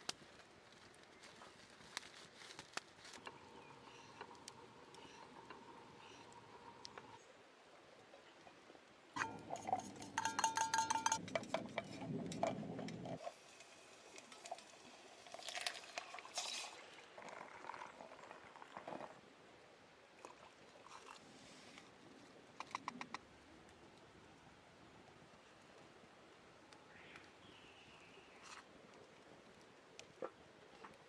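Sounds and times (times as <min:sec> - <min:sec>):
metal cookware clinking: 0:09.2 - 0:12.6.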